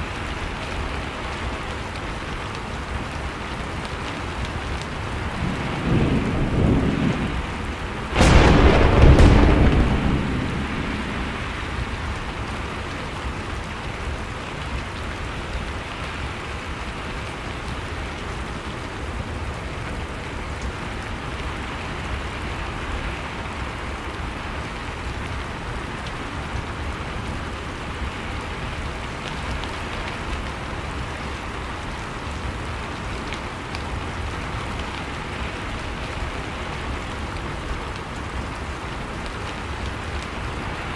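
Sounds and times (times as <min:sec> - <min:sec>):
steady rain falling: 0:00.0 - 0:40.9
thunder rumble and crack: 0:04.5 - 0:15.6.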